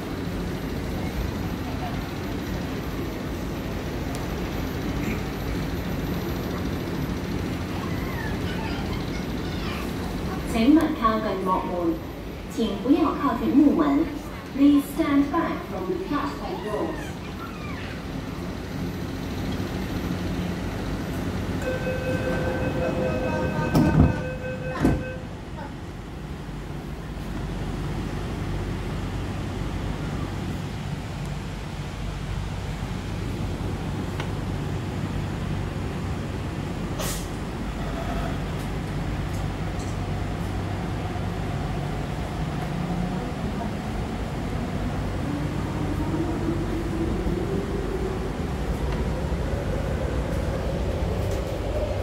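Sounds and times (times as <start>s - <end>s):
train rumbling at platform: 0.0s - 52.0s
multi-tone door warning beep: 21.6s - 25.3s.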